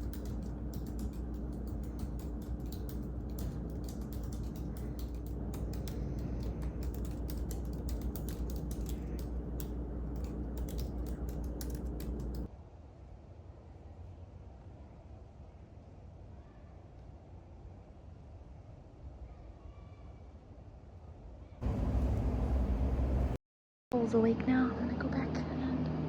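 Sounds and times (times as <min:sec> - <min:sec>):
computer keyboard typing: 0:00.0 - 0:12.5
steady low hum: 0:00.0 - 0:15.8, 0:21.0 - 0:26.0.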